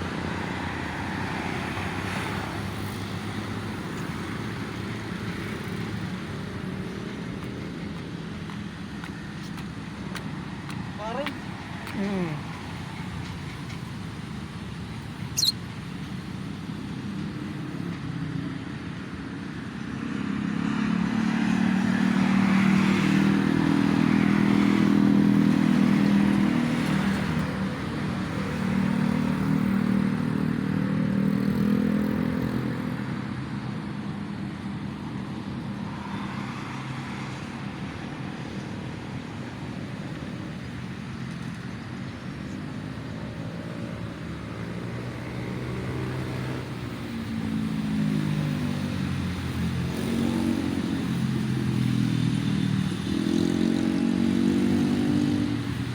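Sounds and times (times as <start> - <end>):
vehicle engine hum passing: 0.0 - 19.0, 20.0 - 55.9
road traffic: 0.0 - 55.9.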